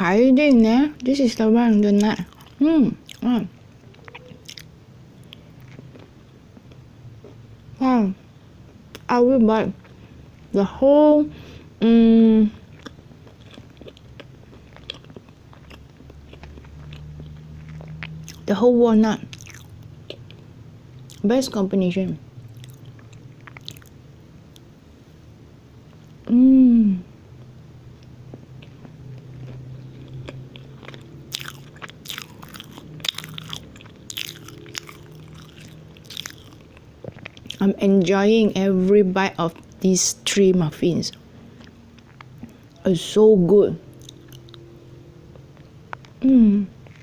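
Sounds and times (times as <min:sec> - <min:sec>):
person chewing: 0:02.0 - 0:07.4, 0:12.6 - 0:18.6, 0:19.2 - 0:21.2, 0:22.5 - 0:24.6, 0:27.5 - 0:37.8, 0:41.1 - 0:42.8, 0:43.9 - 0:44.6, 0:45.3 - 0:47.0
crunchy crackles of nuts: 0:28.0 - 0:37.6.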